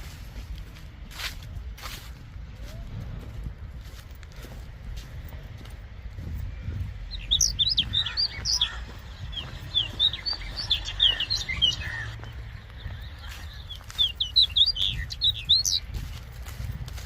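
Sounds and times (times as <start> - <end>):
birds chirping: 4.1 - 17.0.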